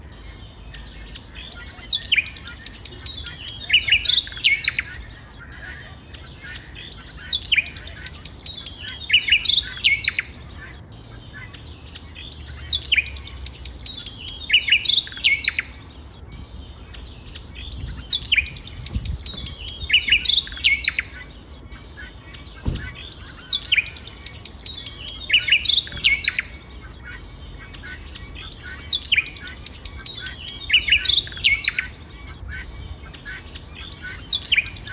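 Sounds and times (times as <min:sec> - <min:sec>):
songbird singing: 0:00.0 - 0:34.9.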